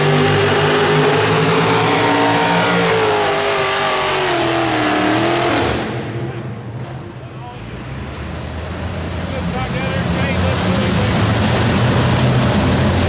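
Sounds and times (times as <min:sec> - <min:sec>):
truck engine running under load: 0:07.5 - 0:13.0.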